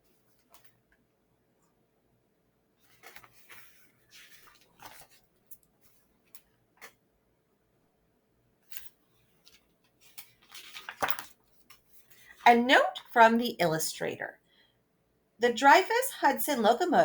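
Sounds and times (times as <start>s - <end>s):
soft clicks of book: 0.2s - 1.8s, 2.8s - 7.0s, 8.6s - 12.4s
paper rustling: 2.8s - 7.0s, 8.7s - 12.4s.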